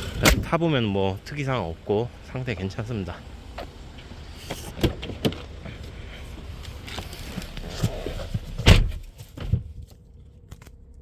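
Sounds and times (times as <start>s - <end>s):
car door slamming: 0.0s - 0.8s, 2.5s - 6.5s, 7.5s - 9.7s
faint engine idling hum: 0.0s - 11.0s.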